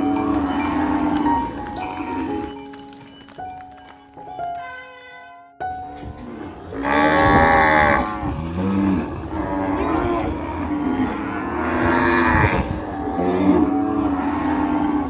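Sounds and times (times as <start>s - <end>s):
cows mooing: 0.0s - 2.6s, 6.2s - 15.0s.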